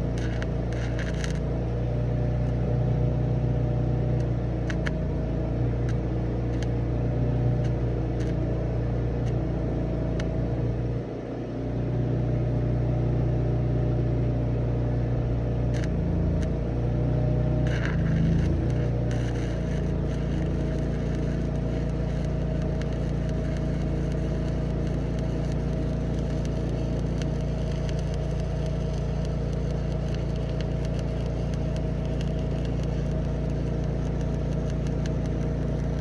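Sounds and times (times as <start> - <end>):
engine running steadily: 0.0 - 36.0
faint clicks: 17.7 - 36.0.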